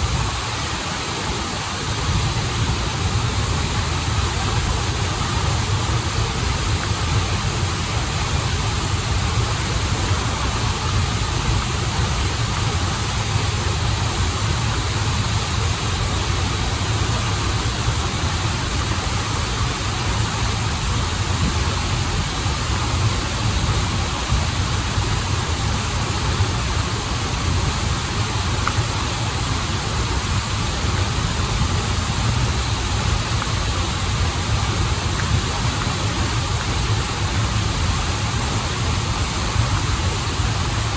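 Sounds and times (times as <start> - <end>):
waterfall and stream running: 0.0 - 40.9.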